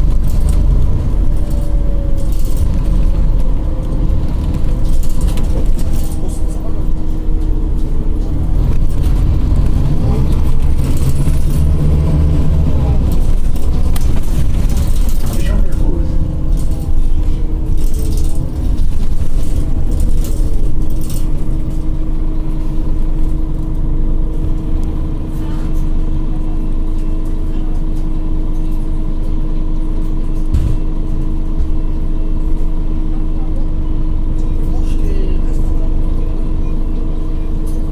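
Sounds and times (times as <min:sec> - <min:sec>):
bus engine rumbling: 0:00.0 - 0:37.9
low thump: 0:30.5 - 0:31.0.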